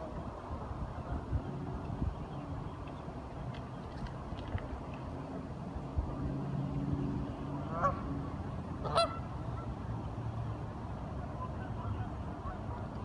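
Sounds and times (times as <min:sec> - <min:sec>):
waterfowl calls: 0:07.6 - 0:08.0, 0:08.8 - 0:09.7.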